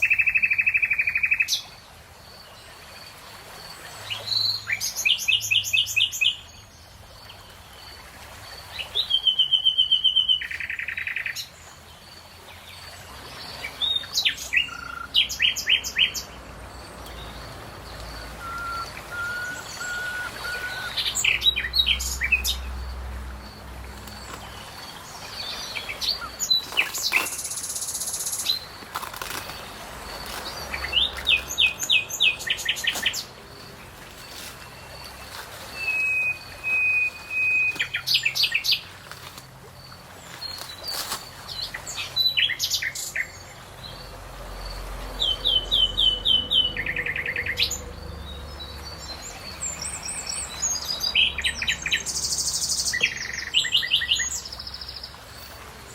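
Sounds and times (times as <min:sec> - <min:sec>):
songbirds chirping and trilling: 0:00.0 - 0:55.9
bird whistled notes: 0:18.4 - 0:21.4, 0:35.7 - 0:38.0.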